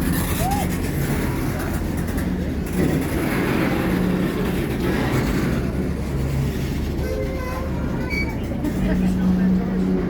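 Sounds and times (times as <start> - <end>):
diesel locomotive engine rumbling: 0.0 - 10.0
crowd chattering: 6.8 - 10.0.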